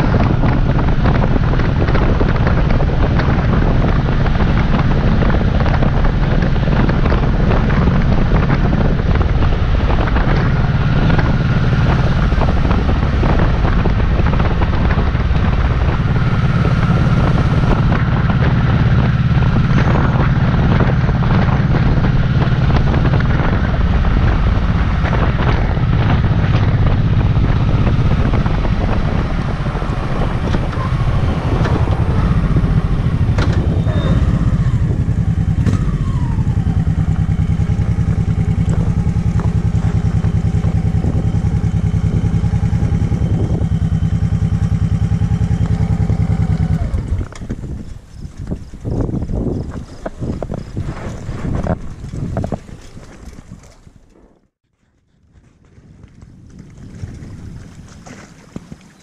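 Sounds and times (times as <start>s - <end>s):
motorcycle engine cruising: 0.0s - 59.0s
wind buffeting microphone: 0.0s - 59.0s.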